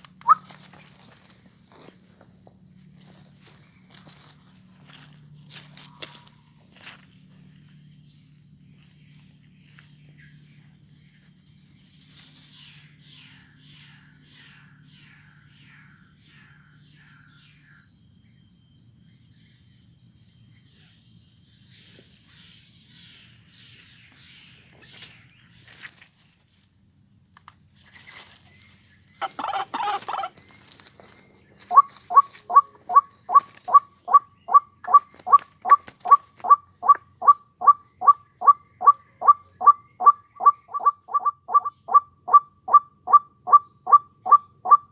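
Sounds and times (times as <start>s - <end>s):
small birds chirping: 0.0s - 6.3s, 27.8s - 44.9s
high insect drone: 0.0s - 44.9s
waterhen calling: 0.2s - 0.6s, 29.2s - 30.4s, 31.7s - 44.8s.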